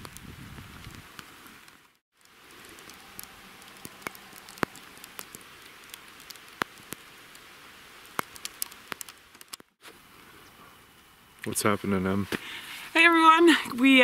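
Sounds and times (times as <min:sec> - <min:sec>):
raindrops tapping close by: 0:00.0 - 0:09.8
steady rain hiss: 0:00.0 - 0:14.0.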